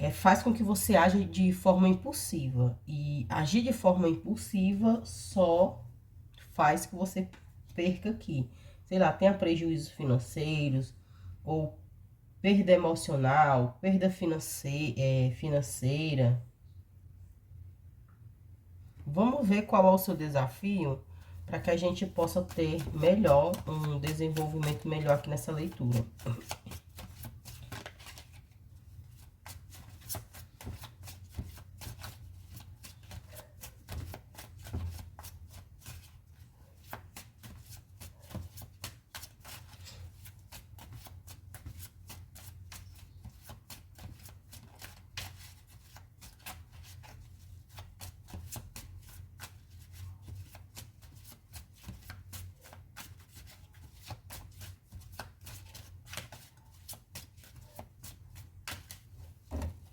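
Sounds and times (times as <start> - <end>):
cards being shuffled: 21.7 - 59.9.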